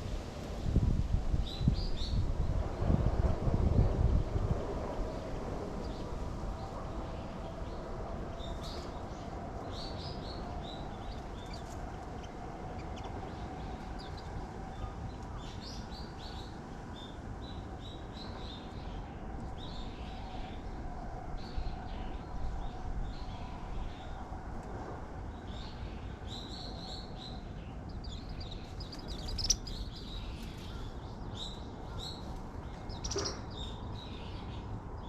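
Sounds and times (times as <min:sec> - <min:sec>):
small birds chirping: 0:07.6 - 0:20.2, 0:25.4 - 0:35.0.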